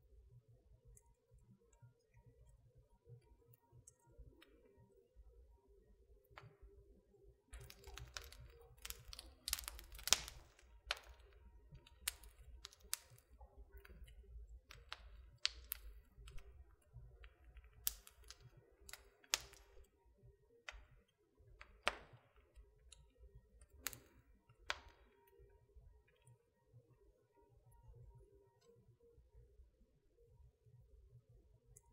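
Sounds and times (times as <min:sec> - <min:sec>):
wood fire crackling: 0:07.5 - 0:20.0, 0:20.7 - 0:25.2.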